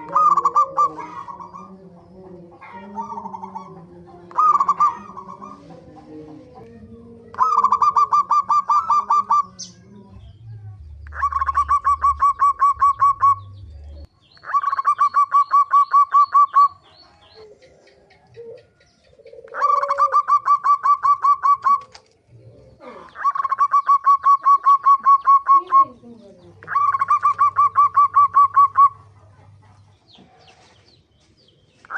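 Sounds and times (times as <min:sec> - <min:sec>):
dove cooing: 0:00.0 - 0:30.6.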